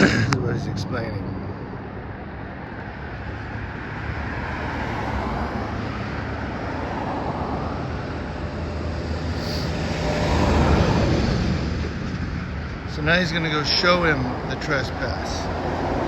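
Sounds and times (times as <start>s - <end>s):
vehicle passing by: 0.3s - 16.0s.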